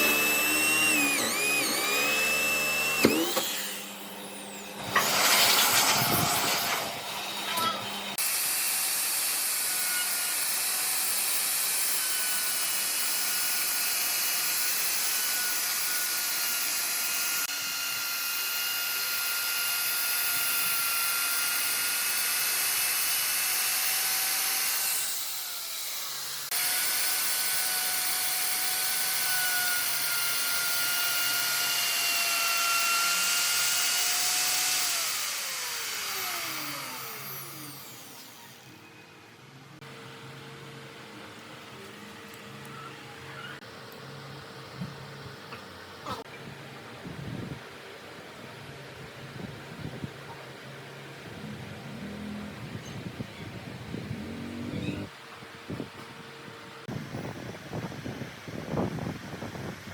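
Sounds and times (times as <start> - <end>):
power tool motor whining: 0.0 - 39.0, 51.4 - 55.1.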